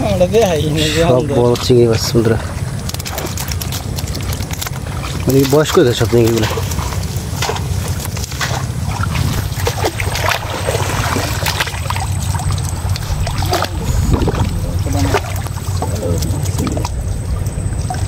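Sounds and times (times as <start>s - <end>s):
steady low rumble: 0.0s - 18.0s
water splashing and trickling: 0.0s - 18.0s.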